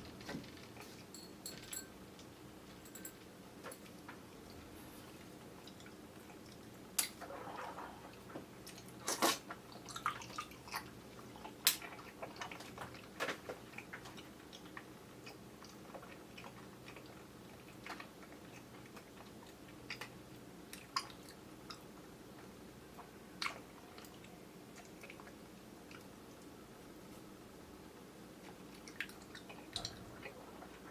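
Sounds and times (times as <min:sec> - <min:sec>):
chewing grape jelly: 0:05.6 - 0:26.6, 0:28.4 - 0:30.9.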